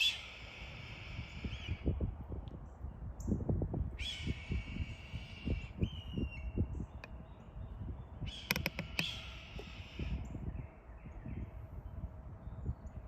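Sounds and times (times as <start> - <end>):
sharp clicks: 8.4 - 9.2.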